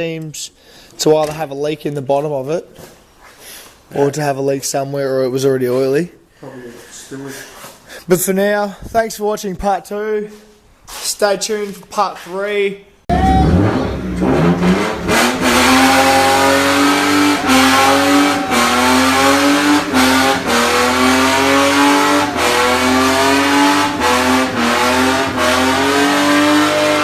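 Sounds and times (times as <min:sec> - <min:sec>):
car engine revving hard: 0:13.1 - 0:27.0.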